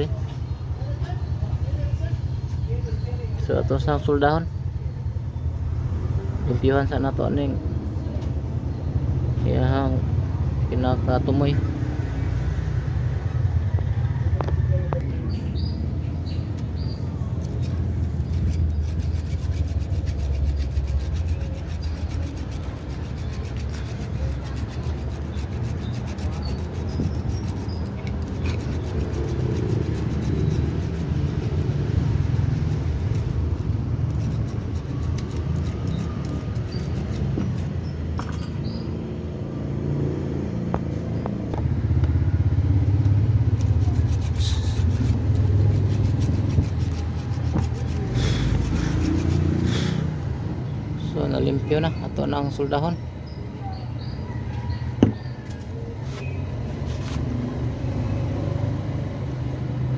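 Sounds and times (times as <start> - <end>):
light clicks and scrapes: 16.1 - 38.8, 42.8 - 50.0, 54.5 - 57.3.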